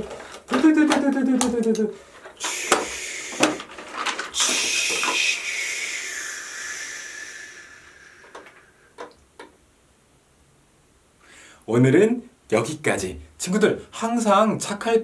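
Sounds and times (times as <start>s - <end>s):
plastic toy clicks and knocks: 0.0s - 5.2s
loud hiss with falling tone: 2.4s - 9.1s.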